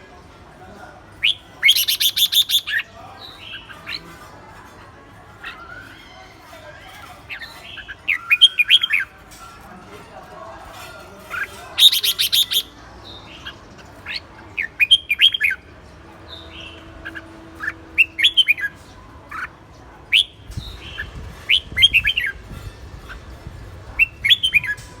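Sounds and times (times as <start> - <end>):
bird chirping: 1.2 - 3.6.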